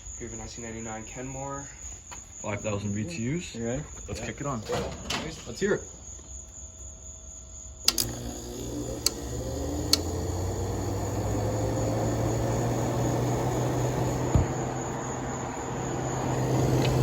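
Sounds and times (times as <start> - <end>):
compressor low hum: 7.8 - 17.0
switch click: 7.9 - 10.2
fan whoosh: 9.0 - 17.0.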